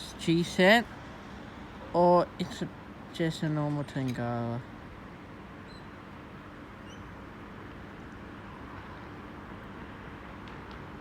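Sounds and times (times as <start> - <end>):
faint bird chirps: 5.6 - 6.0, 6.8 - 7.1.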